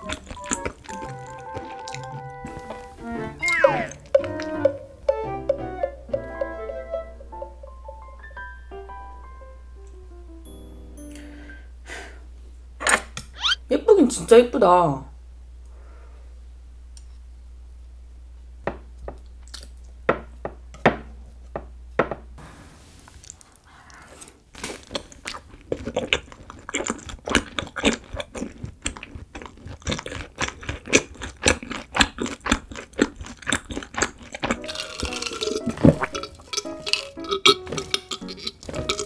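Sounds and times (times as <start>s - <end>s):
chewing jelly: 0.0s - 6.2s, 19.4s - 20.0s, 23.2s - 39.0s.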